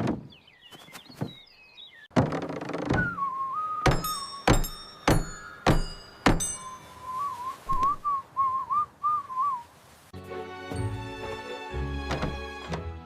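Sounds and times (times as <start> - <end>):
person whistling a tune: 3.0 - 4.5, 6.7 - 9.6
sharp metallic knocks: 3.8 - 6.8.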